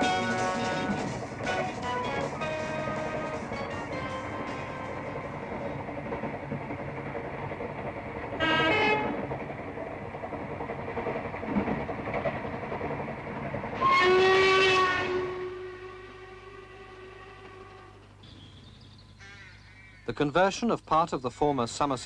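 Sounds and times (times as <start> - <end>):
train horn blasts: 0.0 - 5.0, 8.4 - 9.3, 13.8 - 18.1
train rumble and clatter: 0.0 - 18.2.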